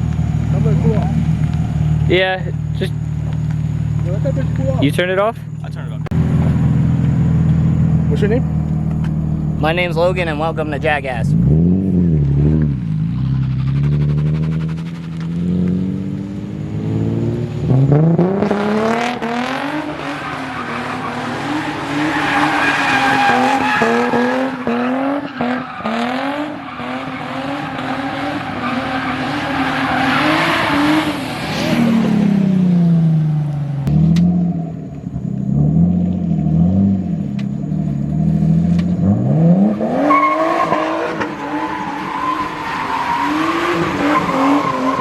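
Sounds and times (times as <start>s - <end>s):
car engine revving hard: 9.7s - 33.2s, 38.1s - 45.0s
tyres squealing: 19.8s - 31.2s, 40.1s - 45.0s.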